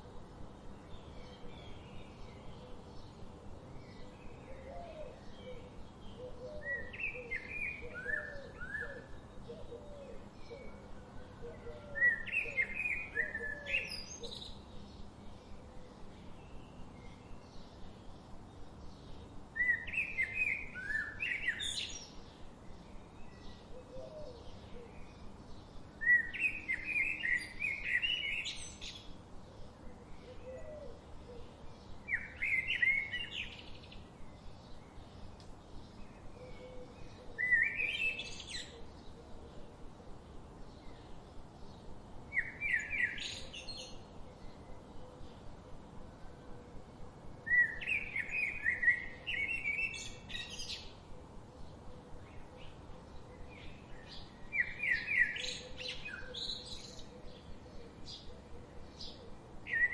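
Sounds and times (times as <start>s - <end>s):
faint bird chirps: 19.0s - 39.8s.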